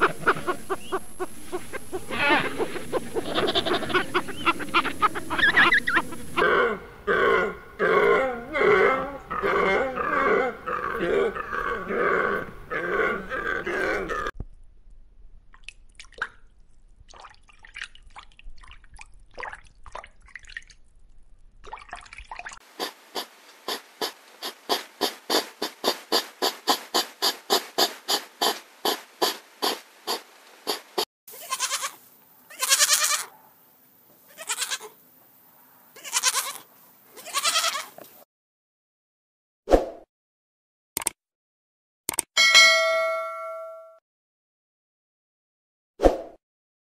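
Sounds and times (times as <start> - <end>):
chorus of animal calls: 0.0 - 14.3
young goats bleating: 1.7 - 6.5, 31.3 - 33.3, 34.3 - 35.0, 36.0 - 38.0
hedgehog huffing: 22.8 - 30.8.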